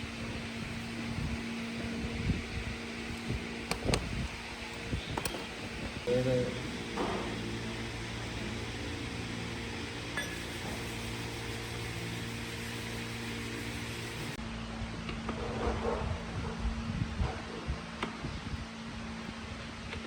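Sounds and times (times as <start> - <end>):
motor humming: 0.0 - 14.4.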